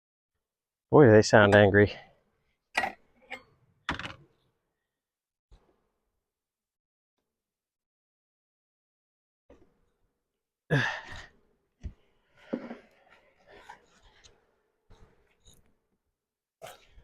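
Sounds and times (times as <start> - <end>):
person sighing: 10.7 - 11.3.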